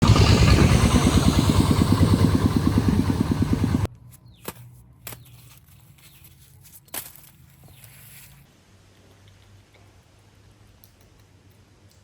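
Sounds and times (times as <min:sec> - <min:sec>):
small engine puttering: 0:00.0 - 0:03.9.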